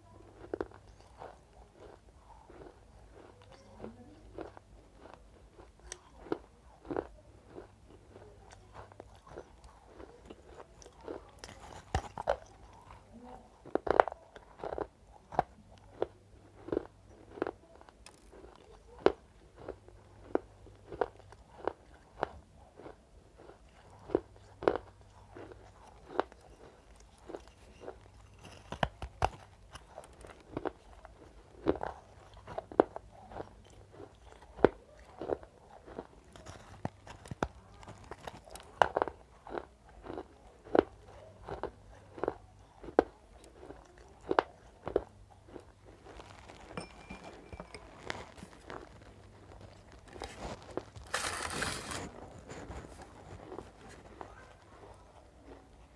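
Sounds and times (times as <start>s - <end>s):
crunchy chalk being chewed: 0.0s - 55.9s.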